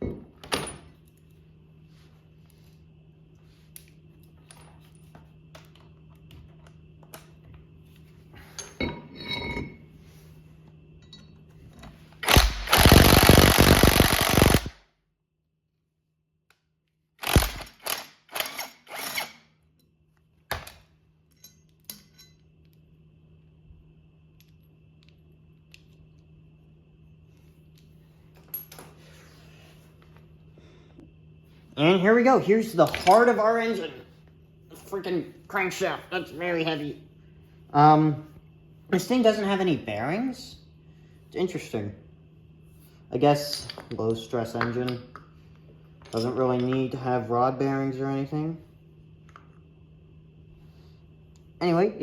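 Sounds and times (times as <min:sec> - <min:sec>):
handheld power tool running: 0:12.2 - 0:14.7, 0:17.2 - 0:19.3.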